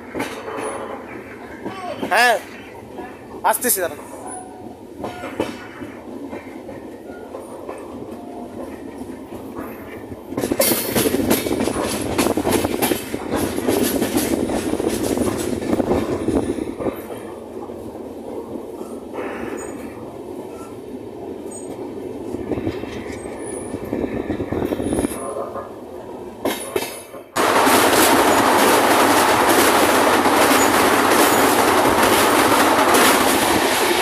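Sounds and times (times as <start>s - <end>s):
train rumble: 0.0s - 34.0s
wheels knocking on rails: 5.0s - 17.3s.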